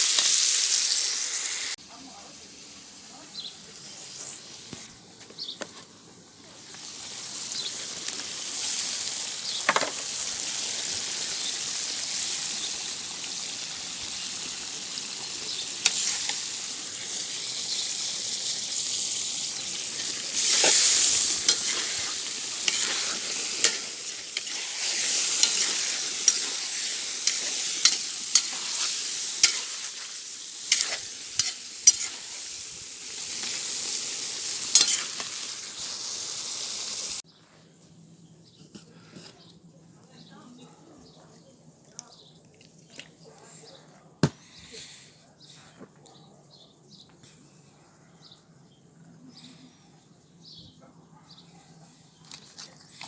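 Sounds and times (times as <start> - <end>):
food sizzling in hot oil: 0.0 - 4.8, 6.6 - 37.2
utensil stirring and scraping: 19.9 - 32.4.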